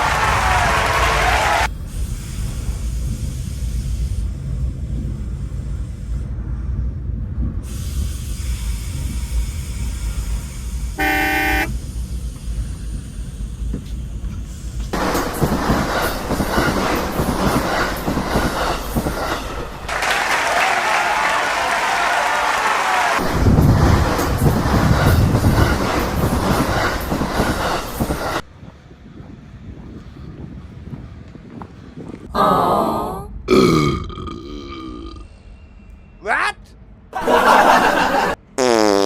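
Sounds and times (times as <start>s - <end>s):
rail and wheel noise: 0.0s - 33.5s, 34.8s - 38.6s
train rumbling: 0.0s - 33.5s, 34.8s - 38.6s
wheels squealing: 10.1s - 20.8s
train horn blast: 11.0s - 11.8s.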